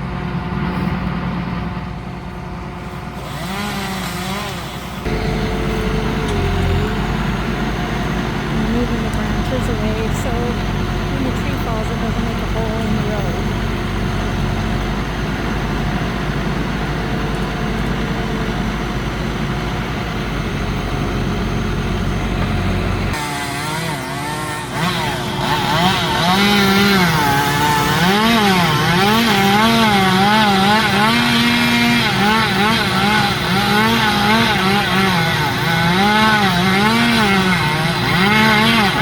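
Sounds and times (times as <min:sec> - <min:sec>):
low engine hum: 0:00.0 - 0:23.2
chainsaw running: 0:02.3 - 0:39.0.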